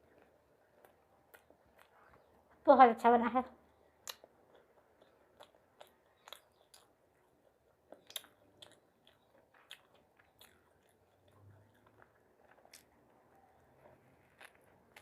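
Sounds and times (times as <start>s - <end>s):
faint chewing: 0.0s - 2.6s, 3.6s - 15.0s
wet mouth clicks and smacks: 4.0s - 4.3s, 7.9s - 10.6s.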